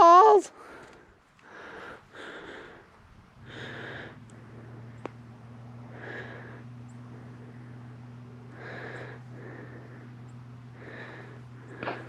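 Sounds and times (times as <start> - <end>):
low steady hum: 0.0 - 12.0
breathing close to microphone: 0.5 - 5.0, 5.8 - 12.0.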